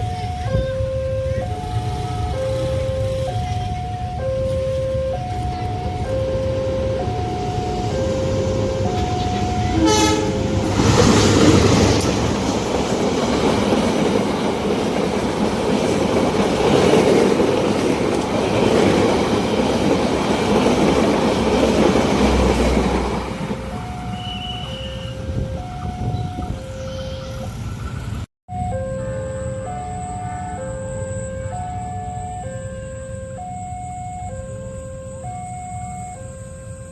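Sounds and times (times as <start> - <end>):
level crossing alarm tones: 0.0 - 14.2, 16.8 - 27.7, 28.5 - 36.9
train passing with rail noise: 0.0 - 36.9
train horn blast: 6.0 - 12.1, 23.8 - 26.2.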